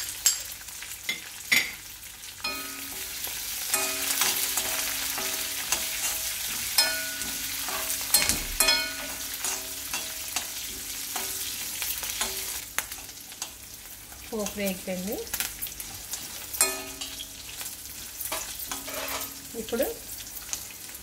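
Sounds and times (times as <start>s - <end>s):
spices sizzling in hot oil: 0.0s - 21.0s
spoon clicking against pan: 16.6s - 17.4s.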